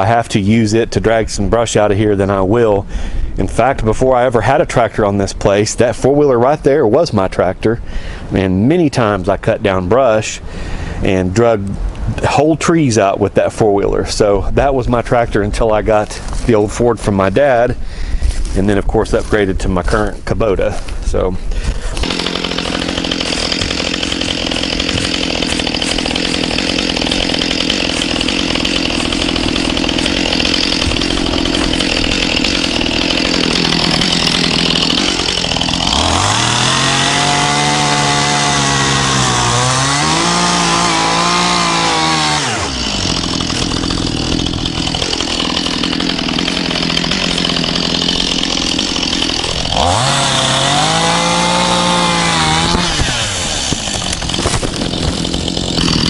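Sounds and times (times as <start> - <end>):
chainsaw cutting brush: 16.0 - 16.6, 21.6 - 56.0.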